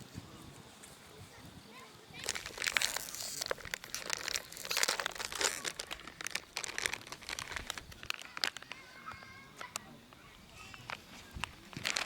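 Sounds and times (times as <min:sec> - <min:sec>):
packaging crinkling: 0:02.2 - 0:08.9, 0:10.7 - 0:12.0.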